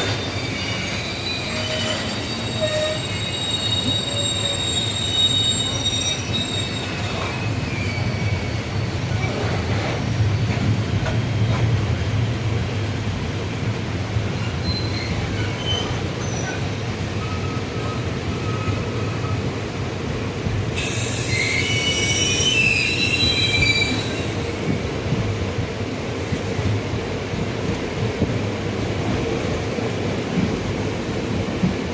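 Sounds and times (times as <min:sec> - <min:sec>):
wheels squealing on rails: 0:00.0 - 0:10.7, 0:14.3 - 0:19.7, 0:20.8 - 0:24.8
train rumbling along track: 0:00.0 - 0:31.9.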